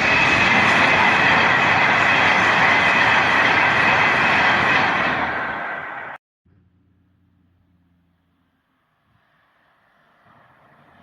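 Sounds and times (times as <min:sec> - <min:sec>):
train wheels rushing on rail: 0:00.0 - 0:06.2.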